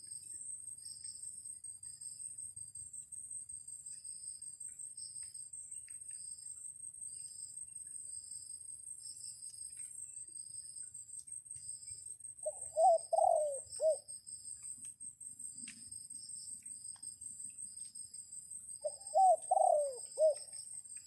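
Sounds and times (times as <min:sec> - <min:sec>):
insect drone with pulsing chirp: 0:00.0 - 0:21.0
dove cooing: 0:12.4 - 0:14.0, 0:18.8 - 0:20.5.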